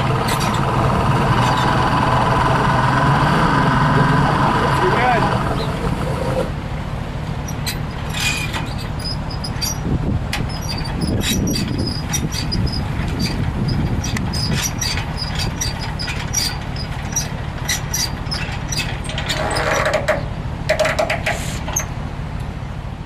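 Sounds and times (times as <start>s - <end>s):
outboard engines idling: 0.0s - 23.0s.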